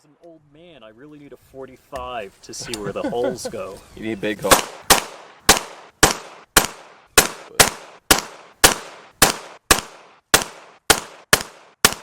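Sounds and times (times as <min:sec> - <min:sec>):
pistol shots with echo: 0:04.4 - 0:12.0.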